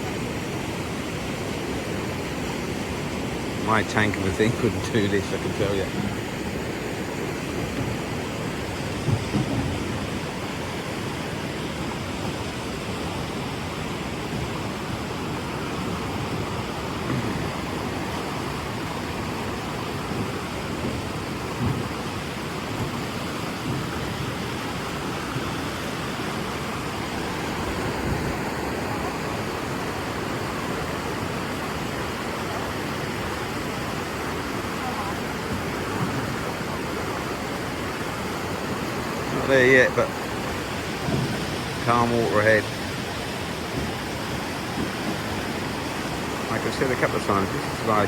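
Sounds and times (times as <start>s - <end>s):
river rapids rushing: 0.0s - 48.0s
low knocks: 8.8s - 10.2s, 20.0s - 25.6s.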